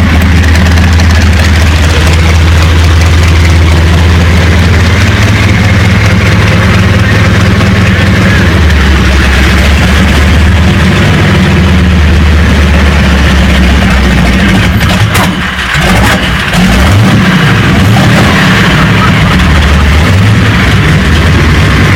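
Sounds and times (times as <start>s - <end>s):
aircraft piston engine running: 0.0s - 16.5s.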